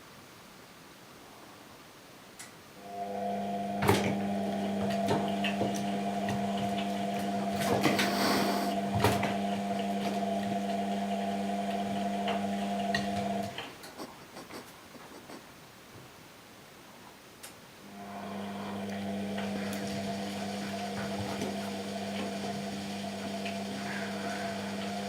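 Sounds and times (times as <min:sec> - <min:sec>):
washing machine motor humming: 0:02.8 - 0:14.6, 0:17.9 - 0:25.0.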